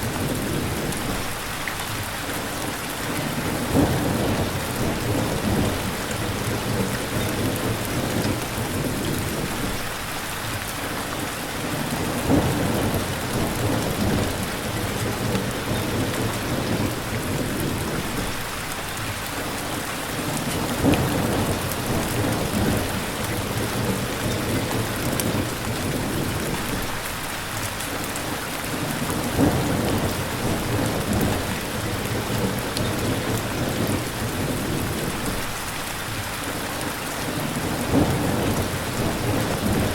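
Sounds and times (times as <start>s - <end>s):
heavy rain: 0.0s - 39.9s
low thunder rumbles: 3.3s - 9.8s, 11.7s - 18.5s, 20.2s - 27.0s, 28.8s - 35.5s, 37.3s - 39.9s.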